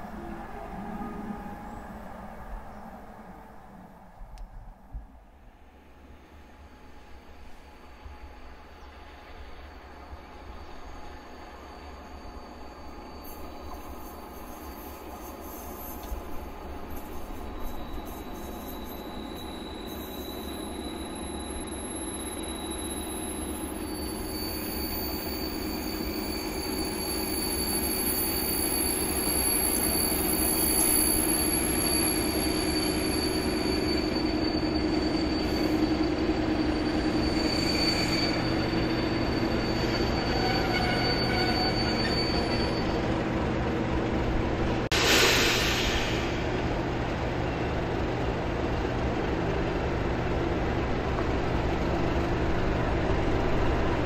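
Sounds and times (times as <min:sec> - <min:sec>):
train rumbling past: 0:00.0 - 0:54.0
short burst of hiss: 0:44.9 - 0:46.6.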